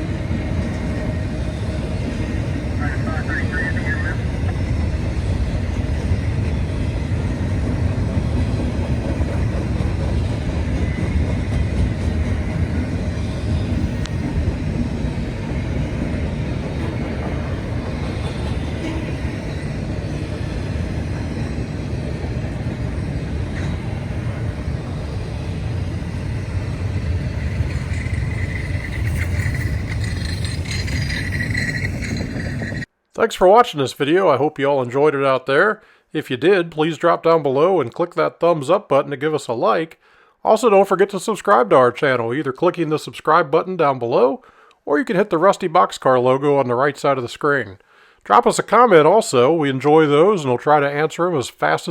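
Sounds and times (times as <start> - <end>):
train wheels rumbling on rail: 0.0 - 32.9
wheel squeal: 26.4 - 32.9.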